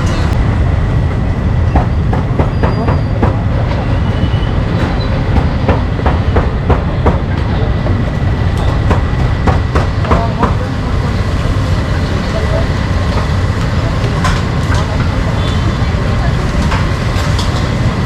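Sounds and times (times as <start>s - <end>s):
street market low rumble: 0.0s - 18.0s
sharp knocks: 4.8s - 7.3s, 8.6s - 10.6s.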